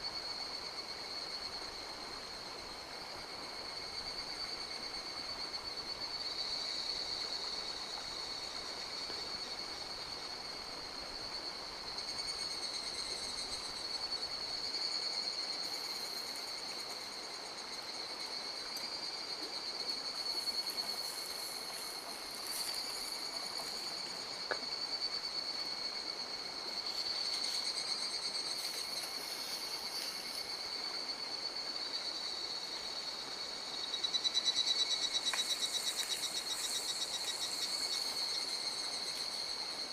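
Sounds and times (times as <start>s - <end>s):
insects calling: 0.0s - 39.9s.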